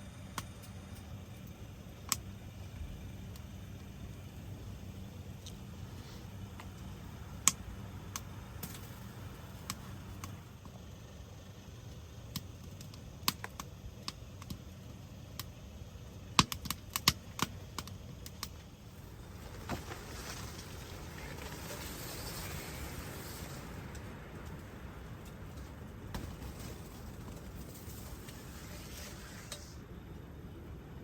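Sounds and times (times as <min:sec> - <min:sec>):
steady low rumble: 0:00.0 - 0:31.0
sharp clicks and snaps: 0:00.3 - 0:02.4, 0:06.5 - 0:10.8, 0:11.8 - 0:15.6, 0:16.3 - 0:18.7.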